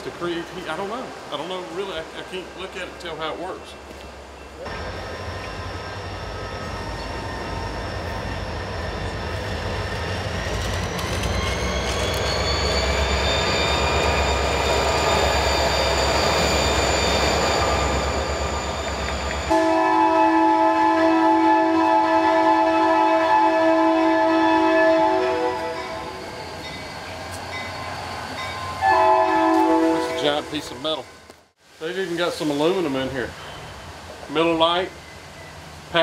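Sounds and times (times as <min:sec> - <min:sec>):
train rumbling past: 0:00.0 - 0:36.0
train horn: 0:19.5 - 0:26.4, 0:28.8 - 0:30.7.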